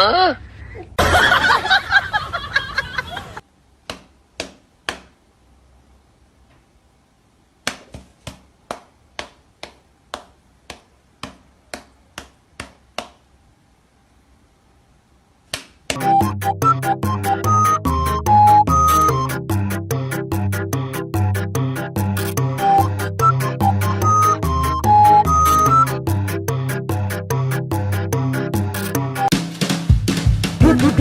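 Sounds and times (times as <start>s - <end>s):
music: 16.0s - 31.0s.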